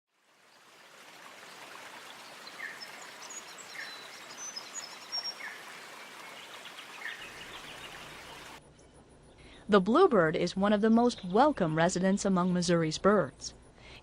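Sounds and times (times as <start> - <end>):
birds calling: 2.0 - 8.6.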